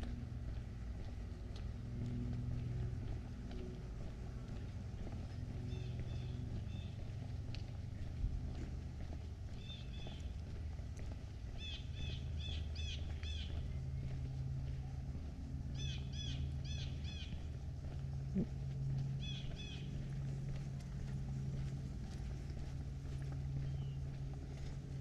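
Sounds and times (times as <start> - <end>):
low background hum: 0.0 - 25.0
songbird chirping: 11.6 - 14.2.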